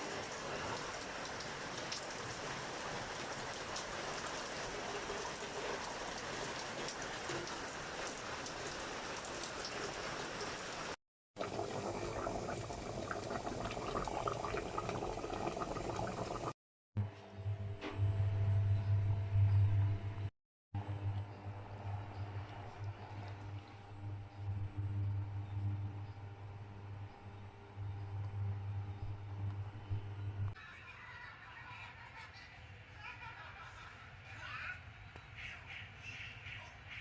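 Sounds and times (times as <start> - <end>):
steady rain: 0.0 - 13.8
liquid bubbling in a pan: 11.4 - 16.6.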